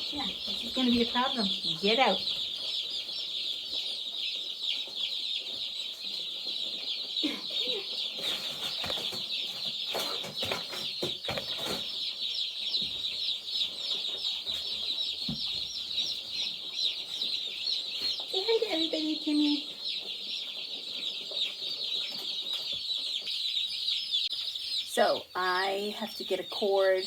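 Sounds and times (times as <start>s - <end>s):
chicks peeping: 0.0s - 27.0s
rustling knocks: 8.2s - 13.2s.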